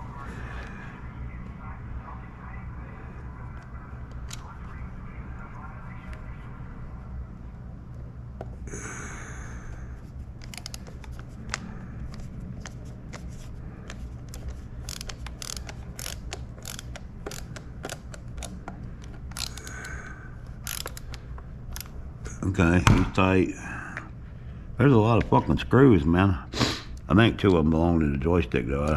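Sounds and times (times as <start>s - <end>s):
small screw clicks: 10.4s - 12.2s, 13.9s - 20.0s, 20.6s - 21.9s
screwdriver scraping plastic: 10.4s - 19.8s, 20.6s - 21.9s.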